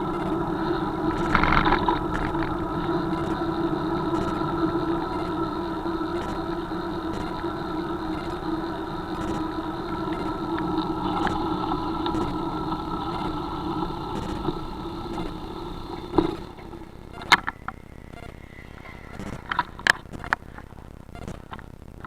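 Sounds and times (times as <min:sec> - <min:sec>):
engine running: 0:00.0 - 0:20.6.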